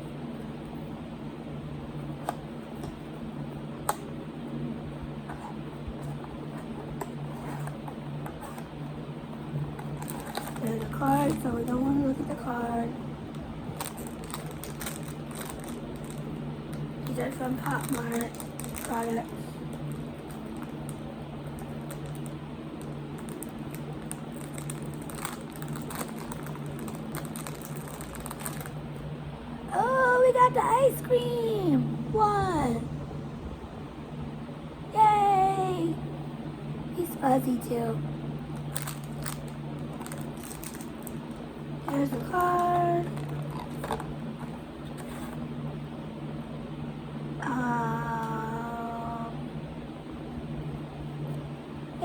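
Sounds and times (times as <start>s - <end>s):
steady low hum: 0.0s - 52.0s
packaging handled: 9.8s - 12.4s, 13.4s - 28.8s, 38.5s - 45.4s.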